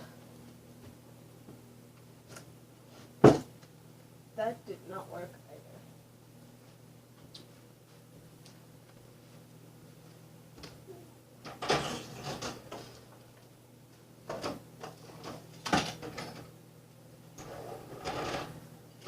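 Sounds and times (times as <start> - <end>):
window fan humming: 0.0 - 19.0.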